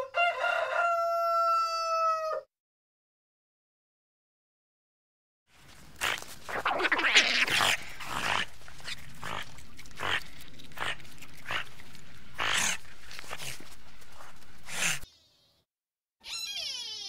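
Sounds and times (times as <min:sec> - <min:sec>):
animal calling harshly: 0:06.0 - 0:15.0, 0:16.2 - 0:17.0.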